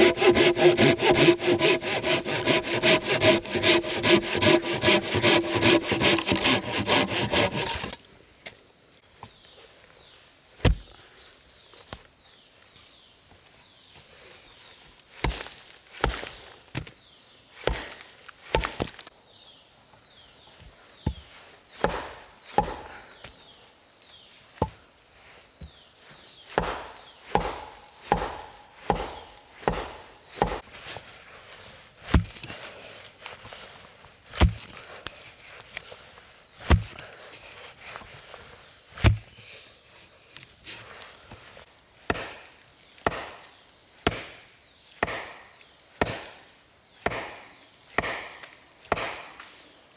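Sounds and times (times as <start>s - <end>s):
axe chopping wood: 0.0s - 8.0s, 10.6s - 10.9s, 15.2s - 16.3s, 17.7s - 19.0s, 21.8s - 22.9s, 26.6s - 30.6s, 32.1s - 32.5s, 34.4s - 34.8s, 36.7s - 37.0s, 39.0s - 39.4s, 42.1s - 43.4s, 44.1s - 44.4s, 45.0s - 45.4s, 46.0s - 46.4s, 47.0s - 49.5s.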